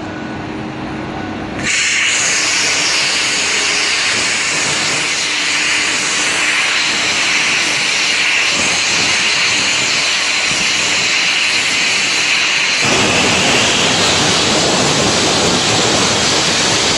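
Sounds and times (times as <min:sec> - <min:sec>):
cutting torch hissing: 0:01.6 - 0:16.9
deep rushing noise: 0:12.8 - 0:16.9.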